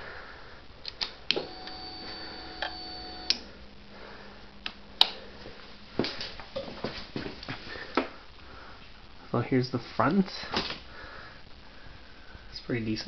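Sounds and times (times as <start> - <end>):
faint electrical hum: 0.0 - 13.0
sharp clicks: 0.8 - 1.4.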